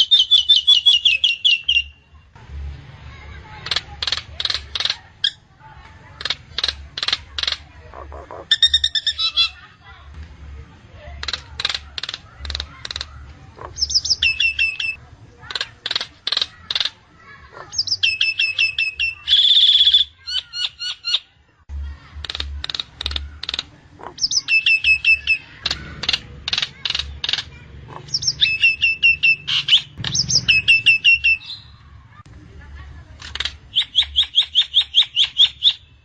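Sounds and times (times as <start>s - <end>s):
bird whistling and clicking: 0.1s - 1.9s, 11.2s - 13.2s, 22.2s - 27.5s, 28.1s - 31.7s, 33.2s - 35.8s
loud harsh bird note: 28.2s - 31.9s.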